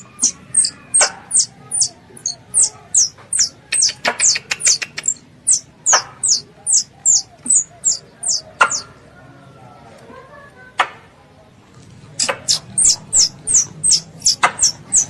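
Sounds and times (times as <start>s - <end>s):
young squirrel chirping: 0.0s - 9.0s, 12.2s - 15.0s
sharp clicks: 3.1s - 5.3s.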